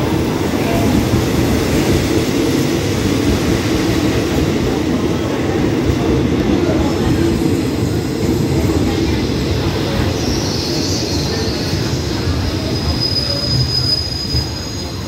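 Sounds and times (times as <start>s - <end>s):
train coaches rumbling: 0.0s - 15.0s
brakes squealing: 10.0s - 15.0s.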